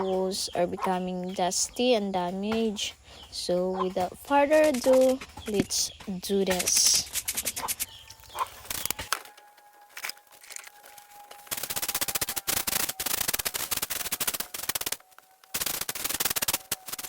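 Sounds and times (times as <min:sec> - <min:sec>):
broom brushing walls: 0:06.5 - 0:07.9.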